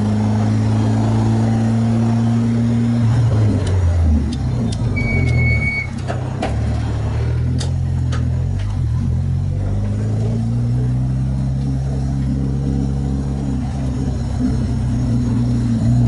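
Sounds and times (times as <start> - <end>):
race car engine running: 0.0 - 16.0
high whistle: 5.0 - 6.0.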